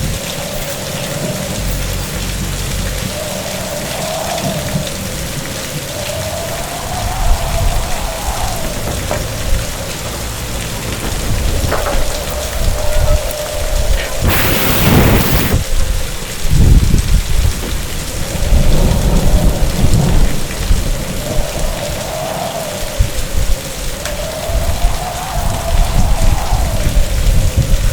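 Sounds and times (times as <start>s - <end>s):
heavy rain: 0.0s - 27.9s
thunder rumbling: 0.0s - 27.9s
sharp thunder crack: 14.2s - 15.6s.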